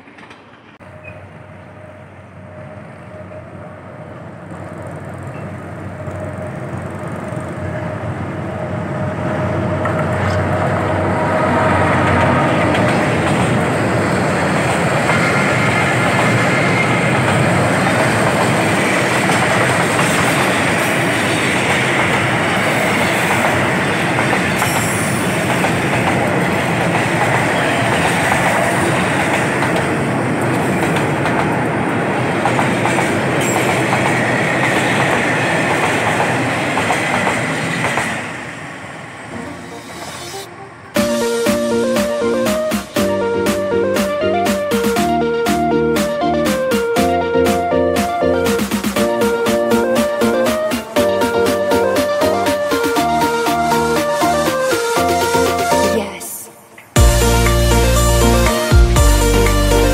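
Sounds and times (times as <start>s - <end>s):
freight train wheels clattering: 9.8s - 38.4s.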